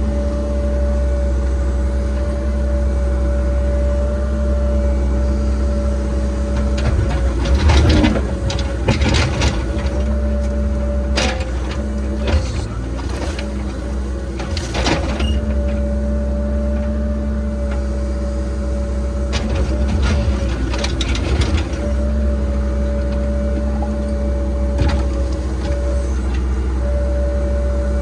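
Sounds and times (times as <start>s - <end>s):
diesel engine rumbling: 0.0s - 28.0s
digging knocks and scrapes: 19.3s - 26.5s.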